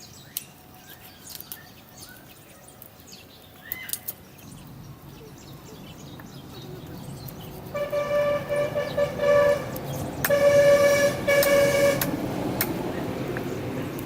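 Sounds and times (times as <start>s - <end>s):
low engine rumble: 4.4s - 14.0s
vehicle horn honking: 7.7s - 12.2s.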